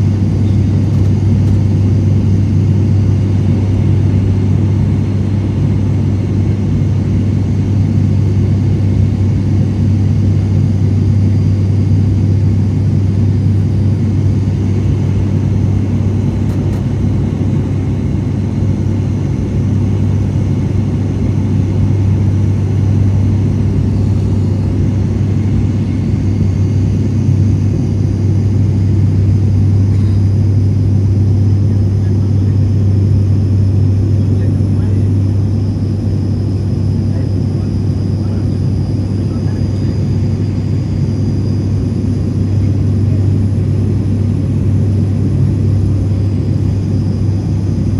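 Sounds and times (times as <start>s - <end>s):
propeller drone: 0.0s - 47.9s.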